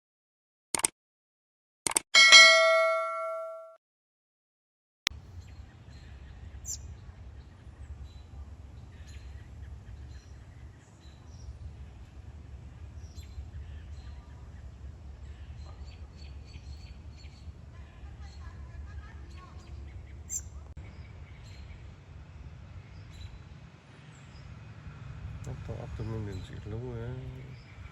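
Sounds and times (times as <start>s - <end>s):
bell ding: 2.2s - 3.8s
low outdoor rumble: 5.2s - 27.9s.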